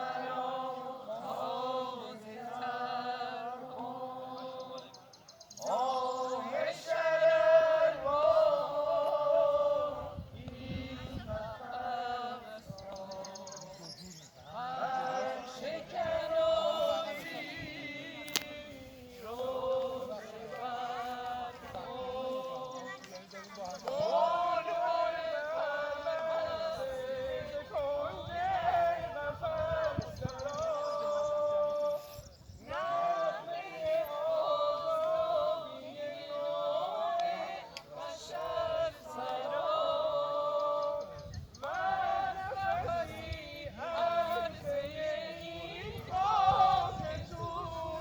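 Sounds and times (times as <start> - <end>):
high voice singing unaccompanied: 23.8 - 48.0.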